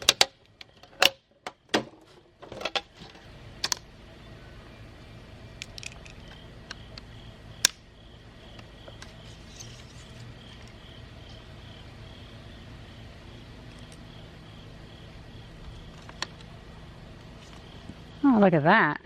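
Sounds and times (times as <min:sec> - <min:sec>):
steady low hum: 0:00.0 - 0:19.0
plastic and metal parts clicking: 0:05.6 - 0:06.4.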